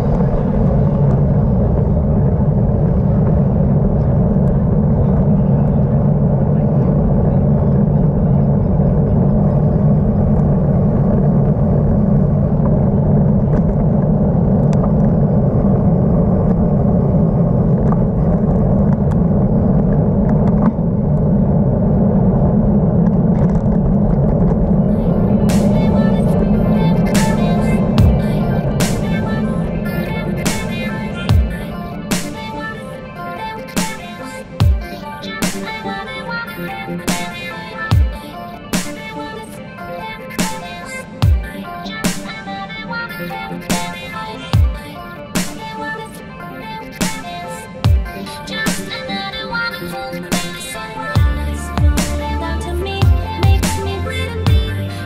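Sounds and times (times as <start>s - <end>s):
traffic noise: 0.0s - 37.1s
wind buffeting: 0.0s - 40.2s
road noise: 0.0s - 55.0s.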